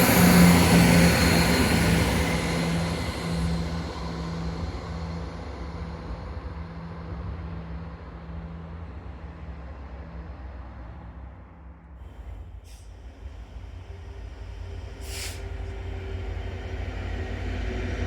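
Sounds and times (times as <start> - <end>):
train rumbling: 0.0 - 18.0
short hisses: 15.0 - 15.5.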